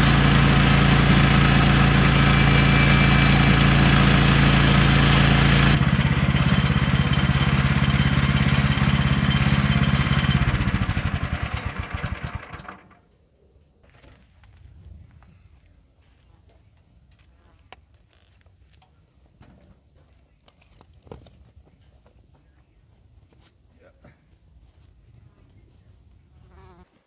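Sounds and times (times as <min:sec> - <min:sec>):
sawmill engine running: 0:00.0 - 0:12.9.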